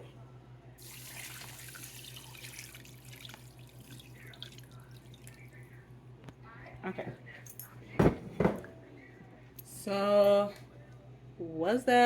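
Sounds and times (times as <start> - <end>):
water pouring into a pan: 0.8 - 5.4
constant low hum: 2.7 - 12.0.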